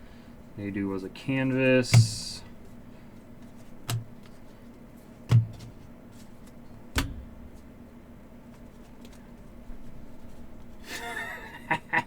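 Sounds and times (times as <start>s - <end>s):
cards tapped down on table: 5.3s - 5.8s.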